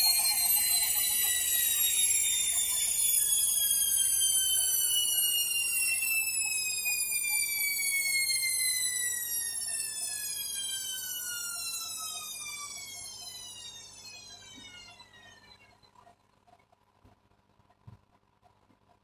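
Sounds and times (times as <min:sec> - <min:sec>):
washing machine motor whining: 0:00.0 - 0:16.2.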